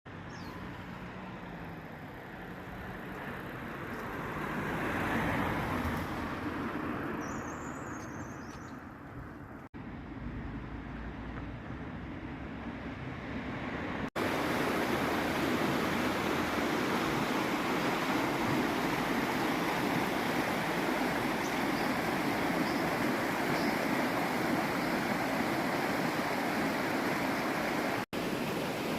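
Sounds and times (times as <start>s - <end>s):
stream water rushing: 14.1s - 28.9s.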